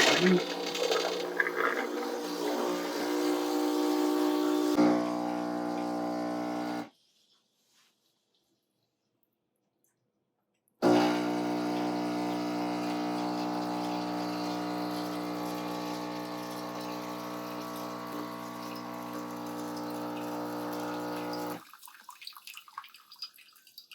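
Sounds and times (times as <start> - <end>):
espresso machine pump running: 0.0 - 6.9, 10.8 - 21.6.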